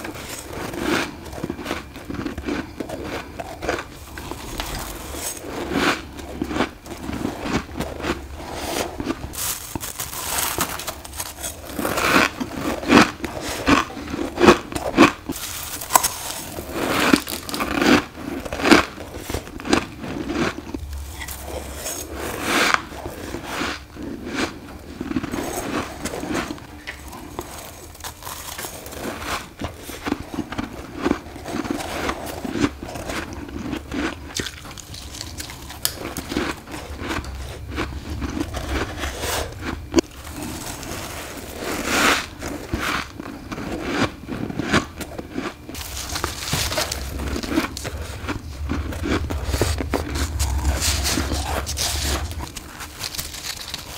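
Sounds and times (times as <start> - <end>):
chewing crunchy ice: 0.0 - 53.9.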